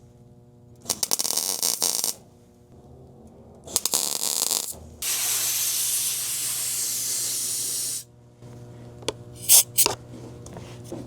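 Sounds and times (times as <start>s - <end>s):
welding arc sizzling: 0.9s - 2.2s, 3.7s - 8.1s, 9.4s - 9.9s.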